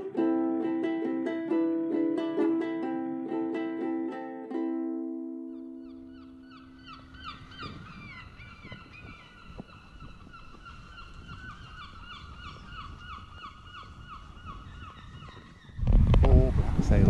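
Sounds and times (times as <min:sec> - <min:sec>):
ukulele note: 0:00.0 - 0:05.5
birds calling falling notes: 0:05.6 - 0:16.0
wind rumble on microphone: 0:06.7 - 0:17.0.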